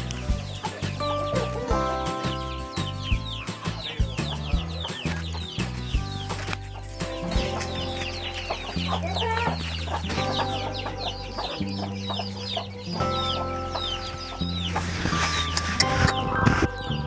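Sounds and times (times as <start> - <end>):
background music: 0.0 - 17.0
chicks peeping: 0.0 - 17.0.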